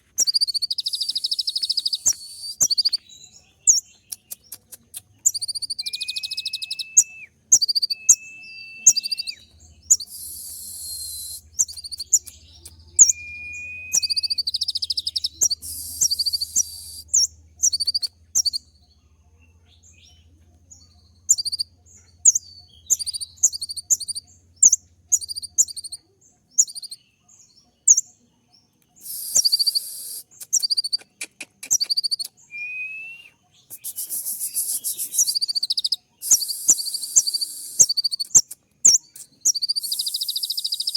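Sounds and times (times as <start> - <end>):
sunbird chirping and trilling: 0.0 - 31.0, 31.7 - 40.9
faint low hum: 5.0 - 28.9.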